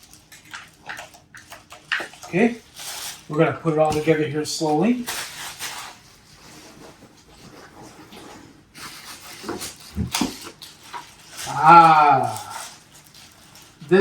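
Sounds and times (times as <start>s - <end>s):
man groaning: 11.5s - 12.6s.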